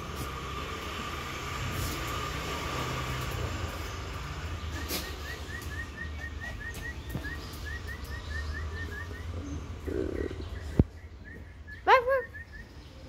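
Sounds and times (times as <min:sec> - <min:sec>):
bird chirping: 0:03.8 - 0:13.0.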